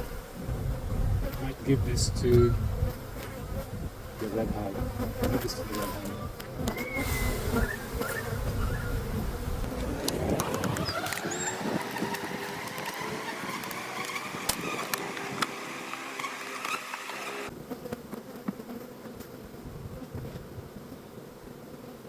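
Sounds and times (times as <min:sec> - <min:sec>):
honey bees buzzing: 0:00.0 - 0:22.0
sharp clicks: 0:10.0 - 0:17.4.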